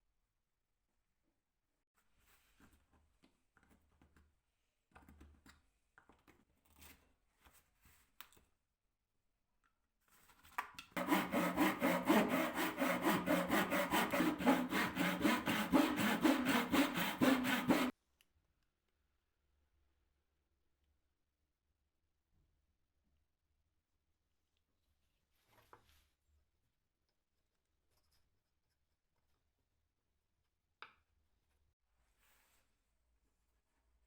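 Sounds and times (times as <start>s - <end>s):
wood sawing or rasping: 11.0s - 17.9s.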